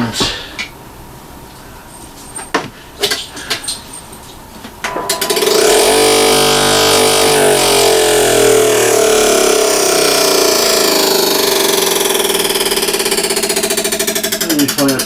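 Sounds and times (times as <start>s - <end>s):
sander motor whining: 4.9s - 14.8s.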